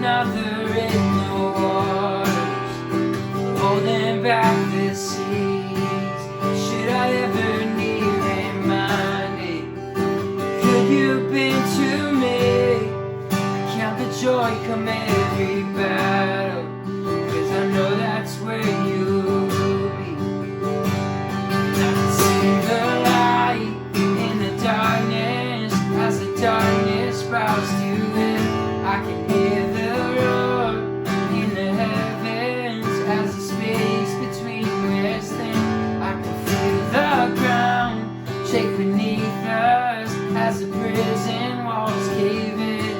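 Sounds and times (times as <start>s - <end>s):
strummed acoustic guitar: 0.0s - 42.9s.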